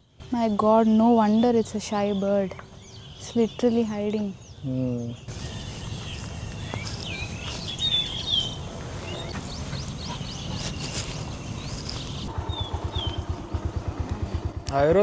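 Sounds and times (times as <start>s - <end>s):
wild birds chirping and whistling: 0.0s - 13.7s.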